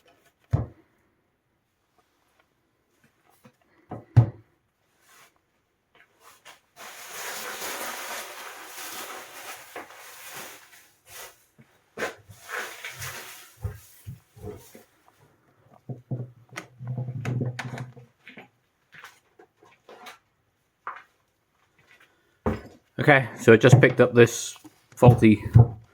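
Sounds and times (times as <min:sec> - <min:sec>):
rustling and scraping: 0:04.8 - 0:22.9.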